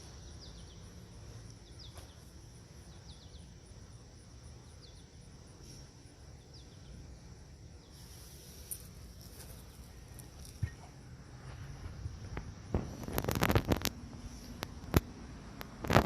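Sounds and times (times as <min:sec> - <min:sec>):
birds chirping: 0:00.0 - 0:10.9
faint high insect hum: 0:00.0 - 0:16.0.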